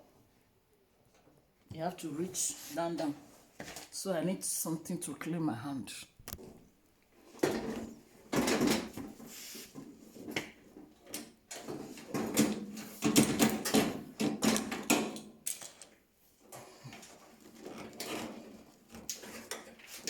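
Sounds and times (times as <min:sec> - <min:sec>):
objects knocking and scraping: 0:06.3 - 0:20.0.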